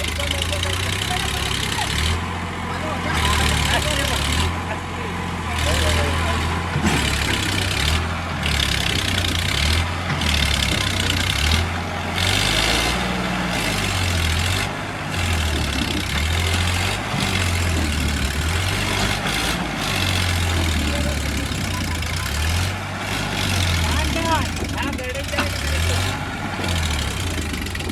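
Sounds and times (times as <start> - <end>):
tractor diesel engine running: 0.0 - 27.9.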